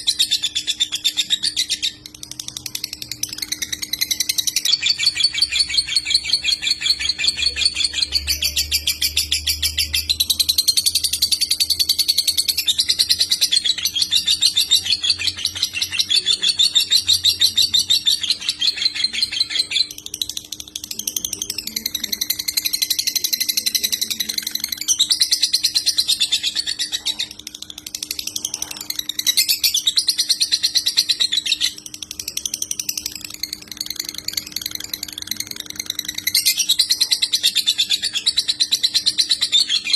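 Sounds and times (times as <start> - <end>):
lovebird trilling chatter: 0.0 - 39.9.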